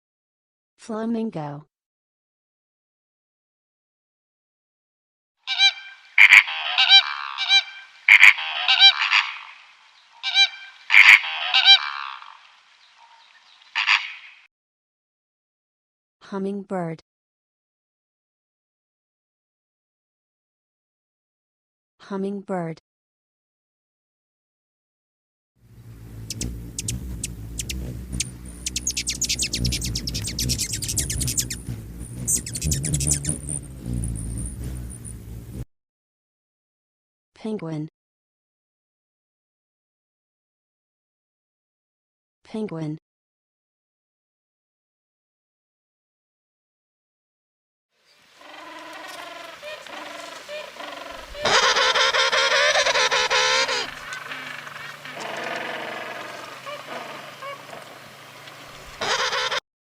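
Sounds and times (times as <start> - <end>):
flamingos honking: 5.5 - 9.6, 10.2 - 12.3, 25.8 - 34.9, 48.3 - 59.6
steady low hum: 25.6 - 35.6
hummingbird chipping and twittering: 25.7 - 35.6, 48.4 - 59.6.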